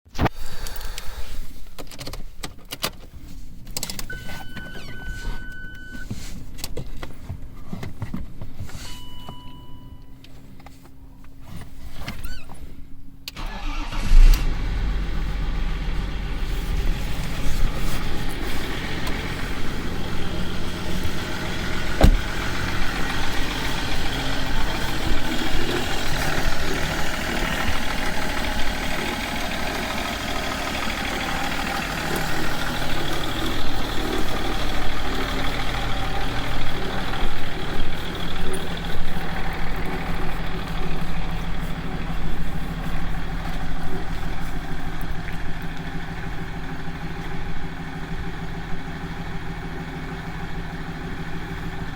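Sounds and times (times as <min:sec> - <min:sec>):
diesel engine idling noisily: 0:13.4 - 0:51.9.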